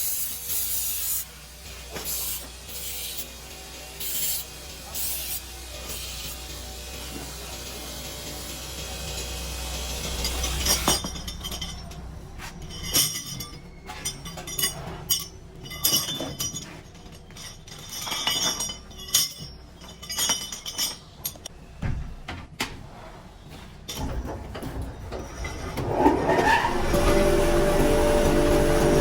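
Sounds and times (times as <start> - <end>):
motorized machine running: 0.0 - 12.7, 24.1 - 29.0
metal parts clinking: 8.4 - 21.5.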